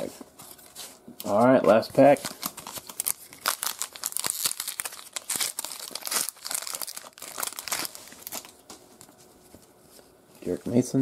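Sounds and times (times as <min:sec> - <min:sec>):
foil wrapper tearing and crinkling: 0:02.1 - 0:08.6.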